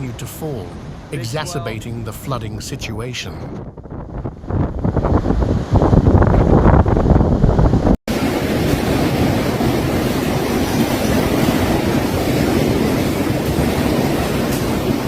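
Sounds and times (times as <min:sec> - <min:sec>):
hurricane wind: 0:00.0 - 0:15.0
heavy rain: 0:08.1 - 0:15.0.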